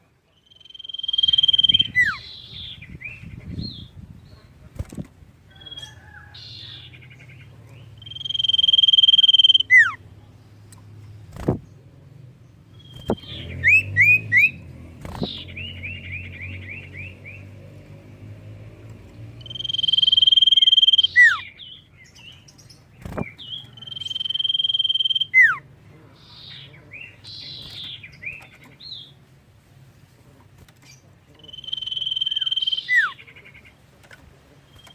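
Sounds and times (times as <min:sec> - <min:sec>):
bird chirps and whistles: 0:00.5 - 0:02.5, 0:08.0 - 0:10.0, 0:19.4 - 0:21.5, 0:23.8 - 0:25.6, 0:31.5 - 0:33.2.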